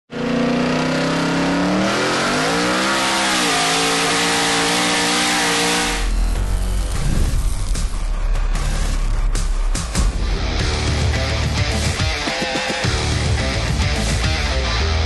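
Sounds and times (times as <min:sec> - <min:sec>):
engine accelerating hard: 0:00.1 - 0:08.3
heavy bass music: 0:01.5 - 0:15.0.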